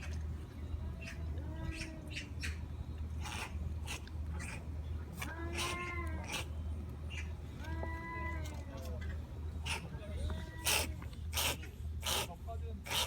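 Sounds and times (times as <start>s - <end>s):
steady low hum: 0.0s - 13.0s
cat meowing: 5.2s - 6.4s.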